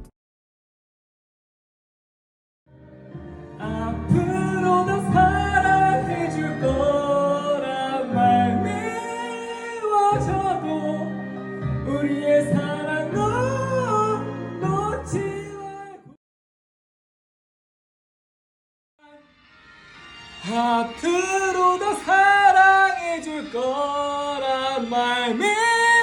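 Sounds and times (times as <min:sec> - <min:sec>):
instrumental accompaniment: 0:02.7 - 0:15.7
person singing: 0:03.4 - 0:16.2, 0:19.0 - 0:19.3, 0:20.4 - 0:26.0.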